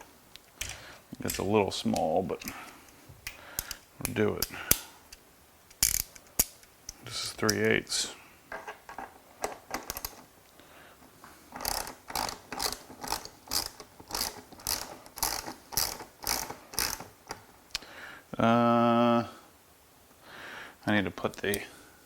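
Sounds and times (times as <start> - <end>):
hand ratchet clicking: 5.7 - 6.6, 11.5 - 17.4.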